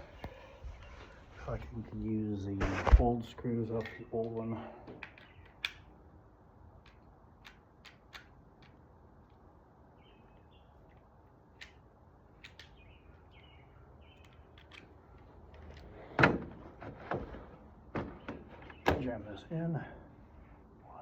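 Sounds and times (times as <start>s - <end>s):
lock hardware clicking: 3.7s - 5.9s, 6.8s - 9.4s, 10.8s - 16.5s.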